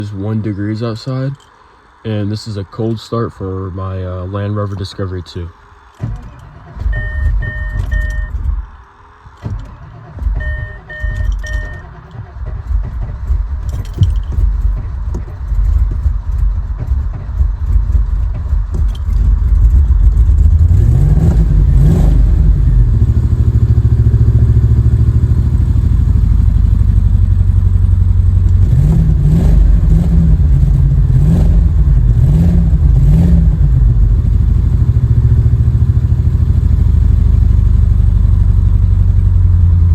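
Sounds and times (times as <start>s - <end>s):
engine cranking: 4.6s - 35.7s
car engine idling loudly: 5.3s - 39.9s
short beeps: 6.9s - 8.4s, 10.4s - 12.0s
engine revving: 9.4s - 39.9s.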